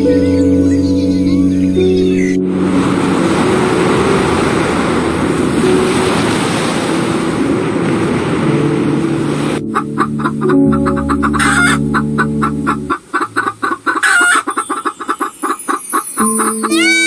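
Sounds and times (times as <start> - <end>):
faint soft music: 0.0 - 17.0
sea water washing over sand: 2.6 - 9.7.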